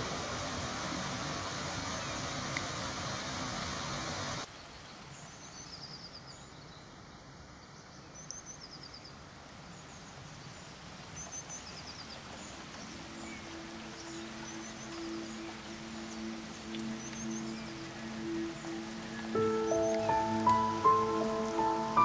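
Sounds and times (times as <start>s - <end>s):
songbirds trilling: 4.6s - 22.0s.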